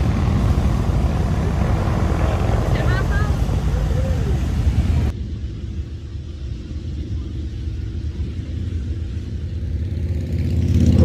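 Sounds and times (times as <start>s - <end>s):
motorcycle engines rumbling: 0.0s - 11.0s.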